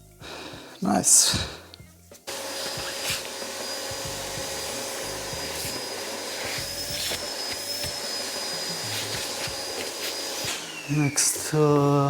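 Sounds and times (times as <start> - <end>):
electric blower motor running: 2.3 - 12.0.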